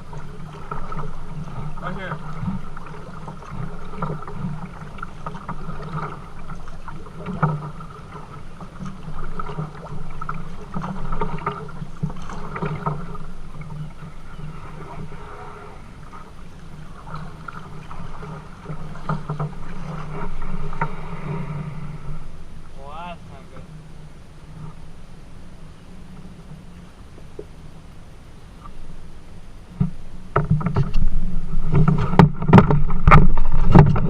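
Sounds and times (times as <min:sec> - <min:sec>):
water splashing and sloshing: 0:00.0 - 0:34.0
small knocks: 0:31.7 - 0:34.0.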